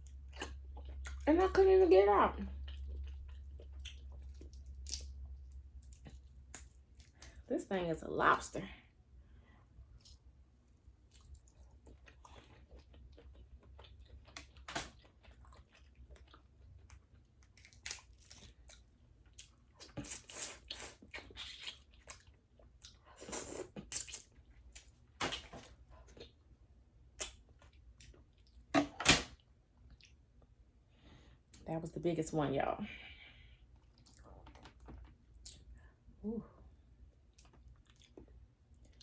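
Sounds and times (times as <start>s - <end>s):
wet chewing and smacking: 0.0s - 1.3s, 2.4s - 7.5s, 9.8s - 26.5s, 27.1s - 28.7s, 29.8s - 30.5s, 33.7s - 35.9s, 37.0s - 39.0s.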